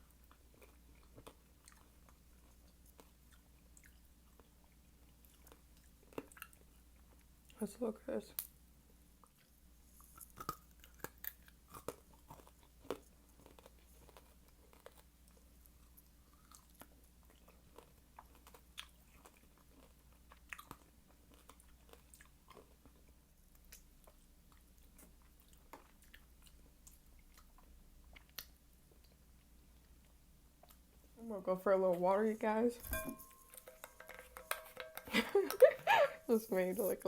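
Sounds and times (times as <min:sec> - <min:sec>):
chewing fruit crunches: 0:00.0 - 0:07.6, 0:09.2 - 0:31.1.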